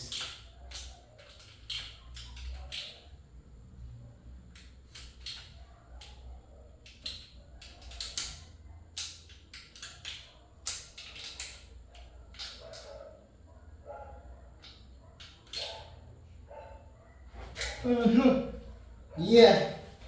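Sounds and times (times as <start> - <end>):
metallic clicks of tools: 0.0 - 3.1, 4.5 - 6.2, 6.8 - 13.0, 14.6 - 15.9.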